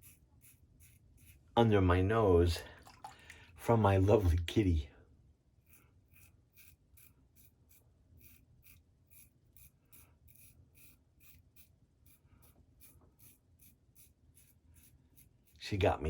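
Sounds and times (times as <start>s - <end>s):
safety razor scraping stubble: 0.0s - 1.5s, 5.6s - 15.9s.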